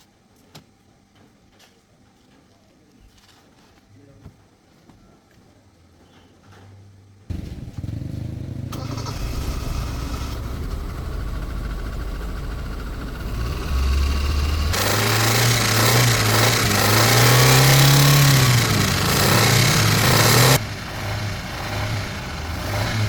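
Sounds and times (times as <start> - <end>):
car engine idling and revving: 7.3 - 23.0.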